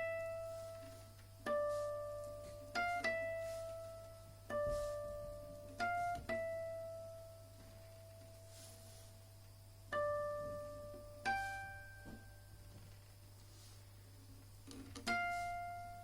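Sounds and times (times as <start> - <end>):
classical guitar melody: 0.0 - 8.4
faint low hum: 0.0 - 16.0.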